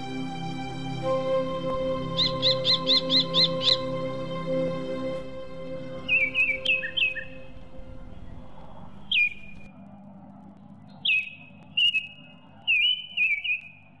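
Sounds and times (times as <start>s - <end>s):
faint low hum: 0.0s - 14.0s
bird whistled calls: 2.1s - 4.0s, 6.0s - 7.5s, 8.2s - 9.7s, 11.0s - 13.8s.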